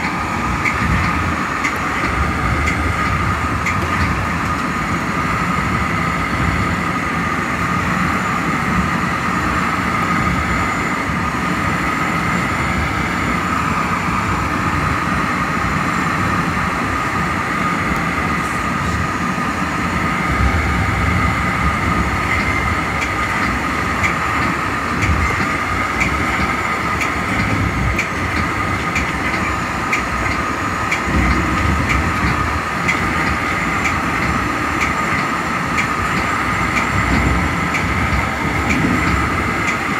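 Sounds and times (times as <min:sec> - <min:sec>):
track clicks: 0:00.0 - 0:05.7, 0:20.3 - 0:39.9
train wheels rumbling on rail: 0:00.0 - 0:39.9.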